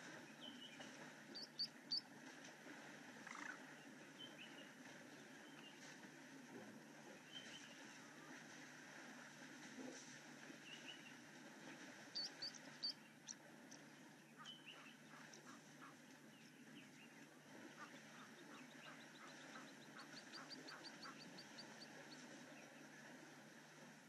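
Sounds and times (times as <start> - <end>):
wild bird calls: 3.2 - 4.7, 12.1 - 22.9.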